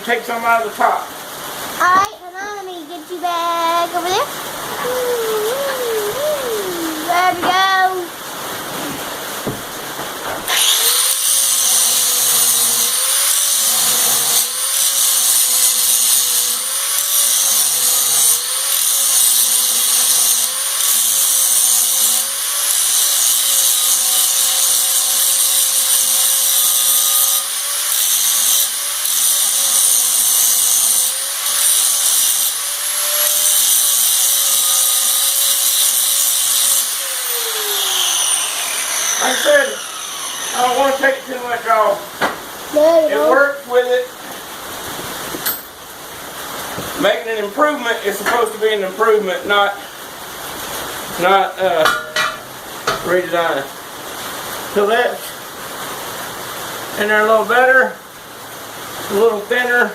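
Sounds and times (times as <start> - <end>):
hiss of grinding metal: 10.4 - 41.9
grinder motor whine: 10.5 - 14.9, 36.7 - 41.2.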